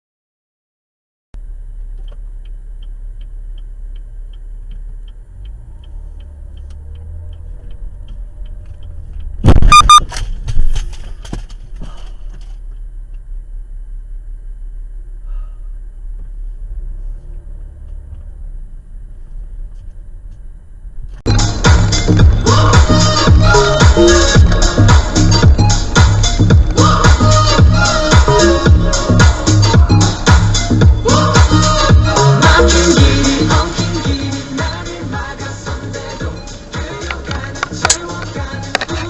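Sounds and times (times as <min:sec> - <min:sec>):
faint regular ticking: 0:01.4 - 0:09.4
engine and road rumble: 0:01.4 - 0:39.0.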